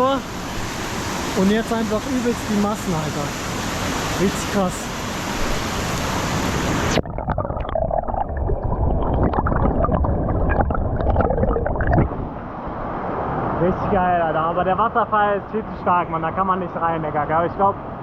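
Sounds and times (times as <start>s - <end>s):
waterfall rushing: 0.0s - 7.0s
water gurgling: 6.5s - 12.3s.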